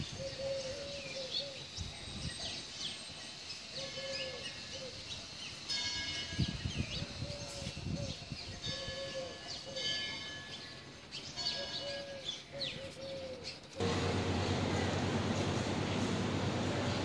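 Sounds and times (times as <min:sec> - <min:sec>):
birds chirping: 0:06.5 - 0:17.0
low hum: 0:13.8 - 0:17.0.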